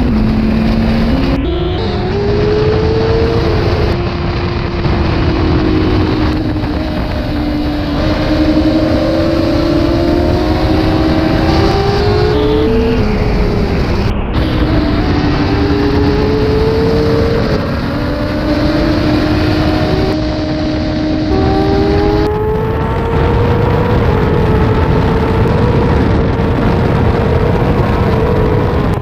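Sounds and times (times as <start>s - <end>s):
motorcycle engine at high revs: 0.0s - 29.0s
wind rush: 0.0s - 29.0s.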